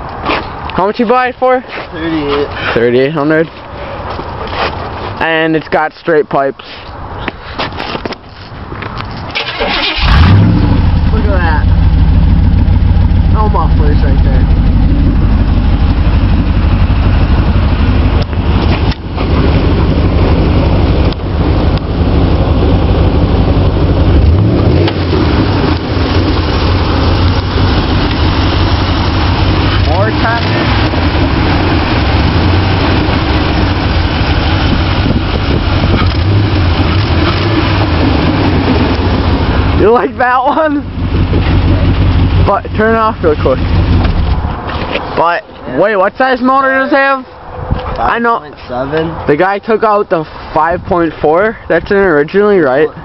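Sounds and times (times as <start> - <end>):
loud vee eight engine exhaust: 9.9 - 44.7.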